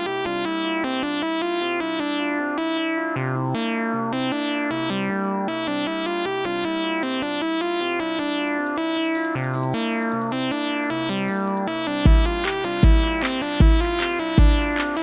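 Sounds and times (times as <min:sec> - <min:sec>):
synth plucky notes: 0:03.0 - 0:15.0
held bass notes: 0:12.1 - 0:15.0.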